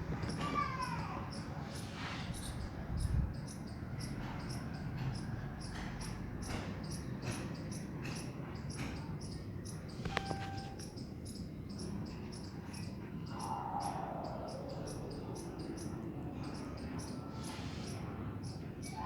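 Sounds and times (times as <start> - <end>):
crickets chirping: 0.0 - 19.0
brief tone: 10.1 - 10.8.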